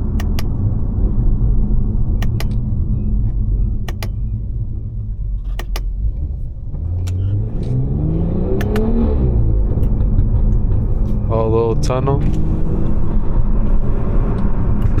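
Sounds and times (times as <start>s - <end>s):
car engine rumbling and revving: 0.0s - 15.0s
short sharp clicks: 2.2s - 2.6s, 3.9s - 4.2s.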